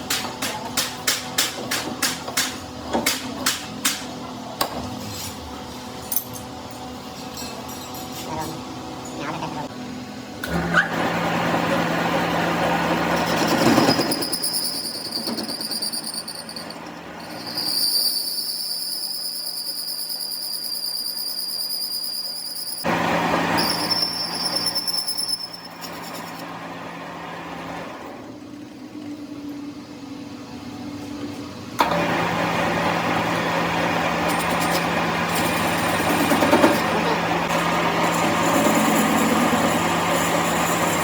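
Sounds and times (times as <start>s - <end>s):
high-pitched machine whine: 12.9s - 26.4s, 34.3s - 41.0s.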